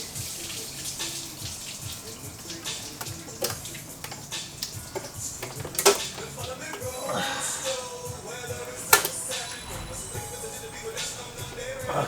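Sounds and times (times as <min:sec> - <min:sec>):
liquid trickling and splashing: 0:00.0 - 0:12.0
light clicks and knocks: 0:01.4 - 0:07.0, 0:08.4 - 0:12.0.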